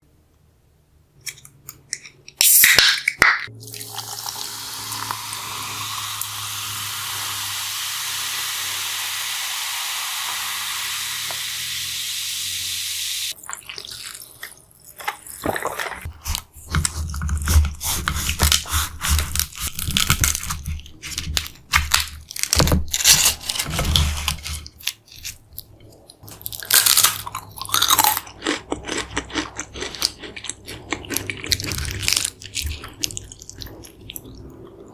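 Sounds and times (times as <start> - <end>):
steady hiss: 4.6 - 13.3
wet chewing: 24.6 - 34.9
crunching bites of fried food: 26.3 - 33.9.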